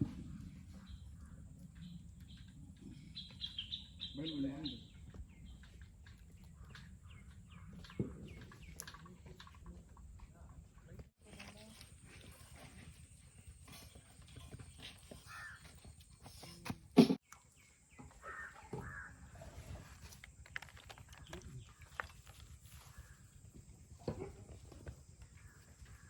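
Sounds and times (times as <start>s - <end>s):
crows cawing: 15.1s - 15.9s, 18.2s - 19.4s.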